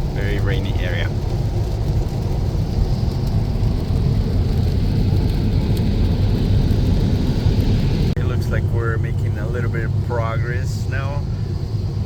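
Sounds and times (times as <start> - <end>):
rain on car body: 0.0 - 12.0
tyres on wet road: 0.0 - 12.0.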